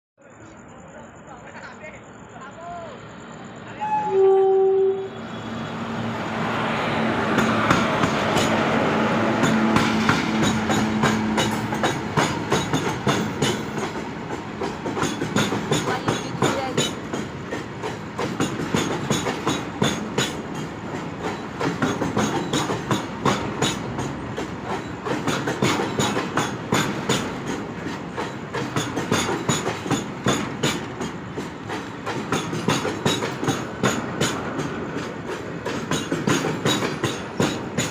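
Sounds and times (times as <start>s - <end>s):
locomotive hum: 0.4s - 37.9s
brief tone: 3.8s - 5.1s
train wheels clacking on rails: 5.6s - 37.9s.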